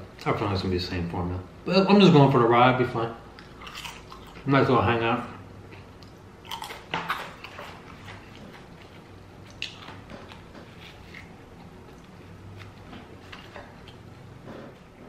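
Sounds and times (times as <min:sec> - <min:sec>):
person chewing: 0:03.3 - 0:04.5, 0:05.7 - 0:14.2.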